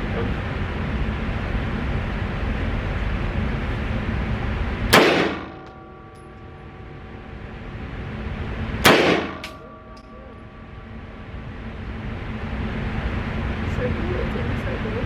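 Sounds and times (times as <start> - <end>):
rifle shots: 4.9 - 5.7, 8.8 - 9.6.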